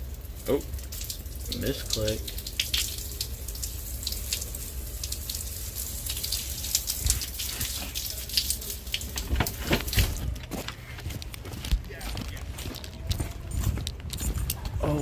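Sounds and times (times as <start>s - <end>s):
man urinating on a doorstep: 0.0s - 15.0s.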